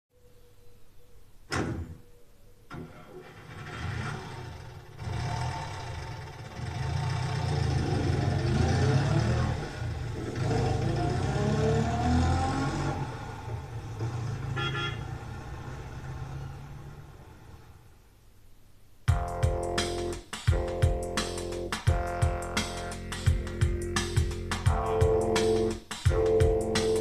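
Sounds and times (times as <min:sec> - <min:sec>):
vehicle engine revving: 0:03.2 - 0:17.6
horn toot: 0:14.5 - 0:15.1.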